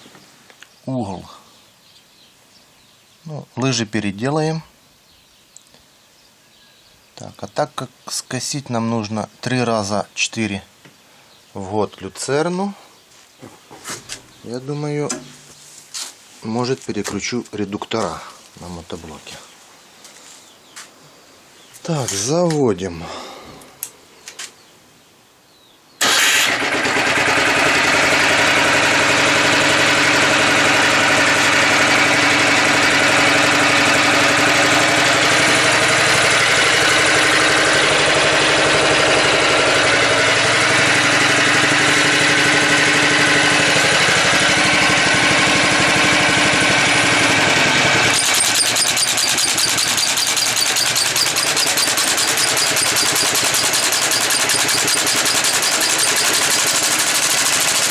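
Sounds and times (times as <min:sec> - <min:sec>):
fast even rattle: 0:26.0 - 0:57.9
tractor engine starting and running: 0:26.0 - 0:57.9.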